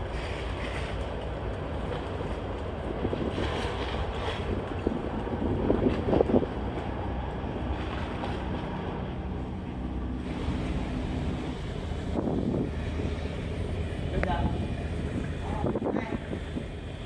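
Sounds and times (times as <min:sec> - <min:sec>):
ferry engines droning: 0:00.0 - 0:17.0
water rushing past hull: 0:00.0 - 0:17.0
wind buffeting microphone: 0:02.4 - 0:17.0
steady hum: 0:06.9 - 0:17.0.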